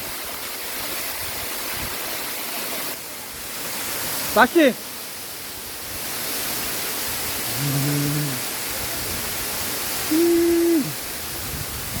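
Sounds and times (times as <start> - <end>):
waterfall rushing: 0.0 - 12.0
people calling out: 10.1 - 11.0.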